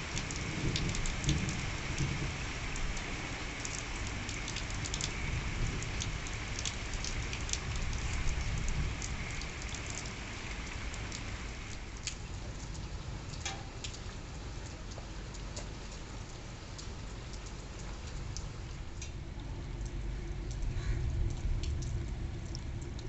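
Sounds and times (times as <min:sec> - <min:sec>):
steady rain falling: 0:00.0 - 0:23.0
drops ticking on a surface: 0:12.0 - 0:23.0.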